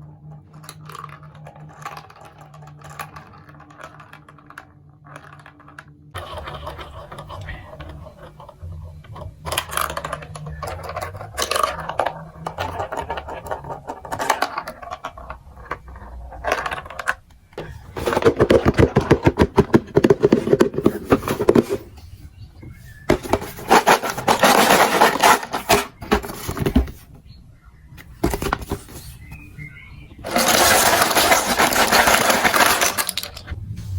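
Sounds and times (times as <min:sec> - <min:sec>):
marbles clicking and clattering: 0:00.3 - 0:21.8, 0:30.2 - 0:33.5.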